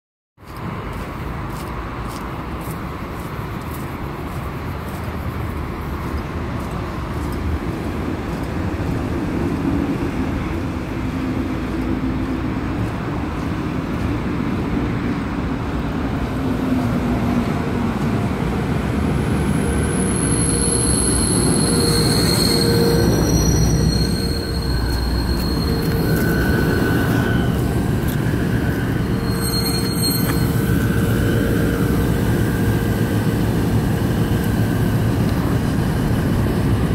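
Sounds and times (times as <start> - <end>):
passenger train rumbling: 0.4 - 36.9
high-pitched metallic squeals: 19.5 - 35.1.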